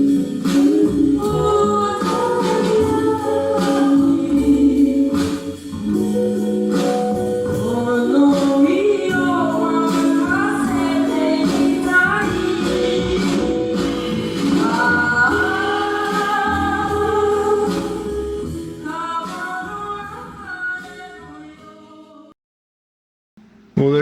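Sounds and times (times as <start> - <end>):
percussion: 0.0 - 21.1
guitar: 0.0 - 21.7
bass: 0.0 - 22.1
girl singing a slow ballad: 0.0 - 22.3.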